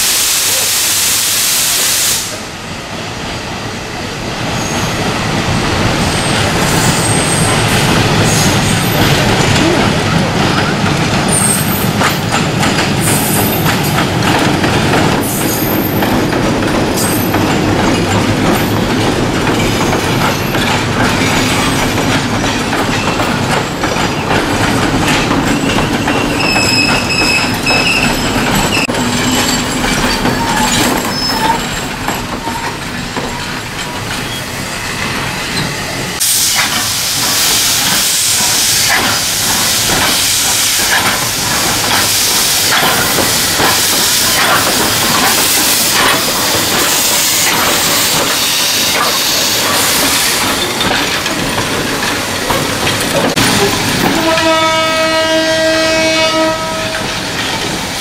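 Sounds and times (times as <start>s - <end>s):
carriages clattering over rail joints: 5.5s - 58.0s
wheel squeals: 25.1s - 34.6s
train horn blast: 54.1s - 57.1s.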